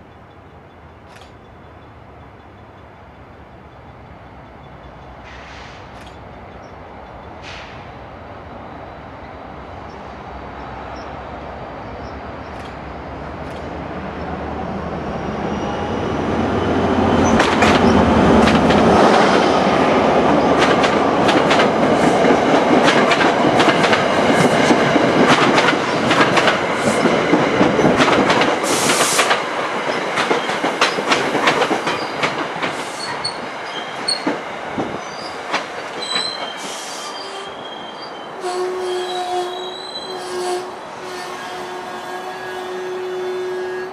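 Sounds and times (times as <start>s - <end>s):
passenger train passing: 0.0s - 43.9s
wheels clicking over rail joints: 20.6s - 36.6s
high wheel squeals: 35.0s - 35.4s, 36.0s - 40.6s.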